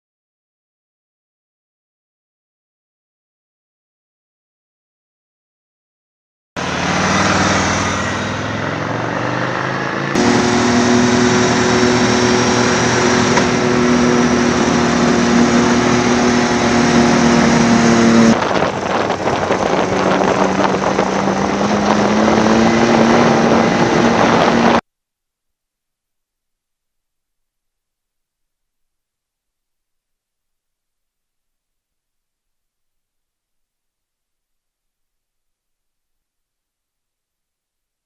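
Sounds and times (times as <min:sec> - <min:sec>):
motorcycle engine revving: 0:06.6 - 0:24.8.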